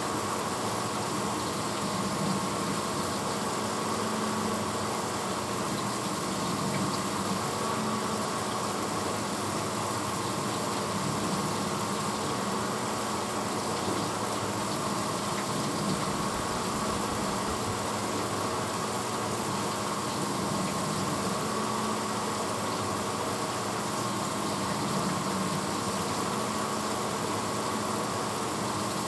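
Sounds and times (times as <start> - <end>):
pump motor hum: 0.0 - 29.0
water spraying inside dishwasher: 0.2 - 29.0.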